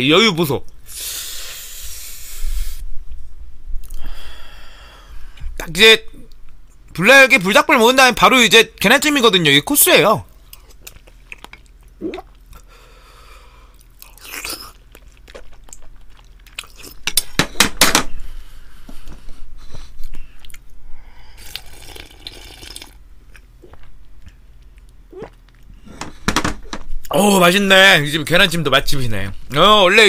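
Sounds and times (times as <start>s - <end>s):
chewing and crunching food: 10.4s - 12.7s, 13.4s - 17.4s, 19.6s - 25.8s.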